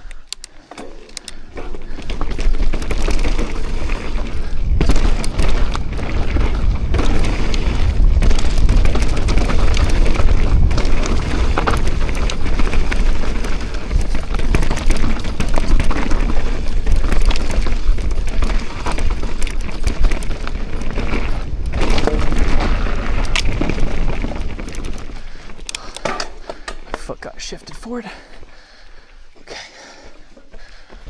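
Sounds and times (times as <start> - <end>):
bike clicks and knocks: 0.0 - 27.8
mountain bike rattling: 0.0 - 31.0
wind rumbling on microphone: 1.9 - 25.7.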